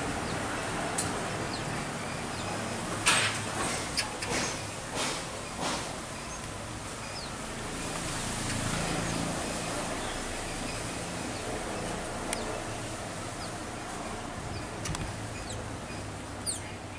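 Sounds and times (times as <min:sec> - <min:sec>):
small birds chirping: 0:00.0 - 0:03.0, 0:03.7 - 0:16.9
sharp click: 0:14.8 - 0:15.1.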